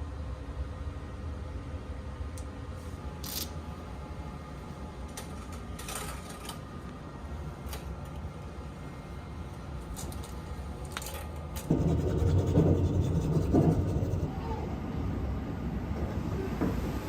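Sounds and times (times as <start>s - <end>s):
train rumble: 11.6s - 17.0s.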